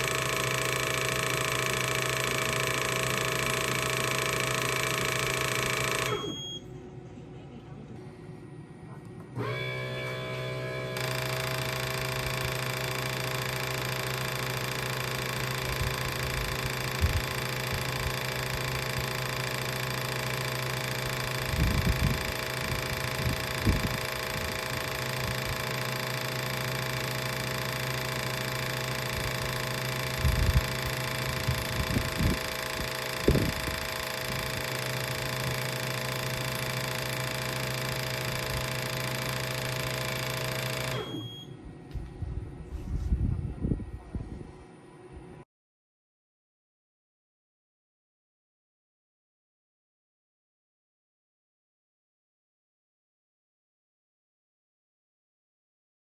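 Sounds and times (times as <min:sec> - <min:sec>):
electric machine humming: 0:00.0 - 0:42.6.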